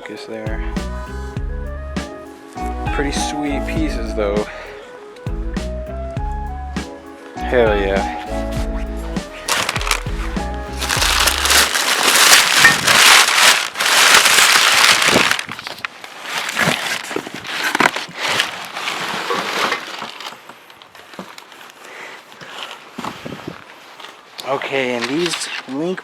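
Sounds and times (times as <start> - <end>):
packing material crinkling: 9.2 - 26.0.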